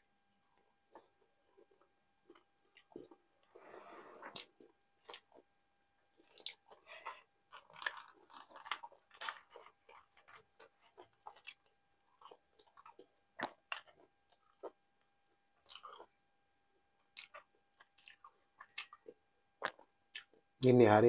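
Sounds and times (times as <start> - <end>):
chewing with wet mouth clicks: 4.2 - 5.4, 6.2 - 14.8, 15.6 - 16.1, 17.0 - 20.4.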